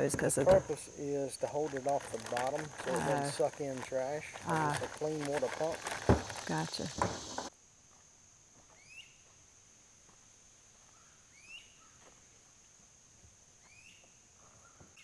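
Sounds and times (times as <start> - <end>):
high-pitched insect drone: 0.1 - 7.5.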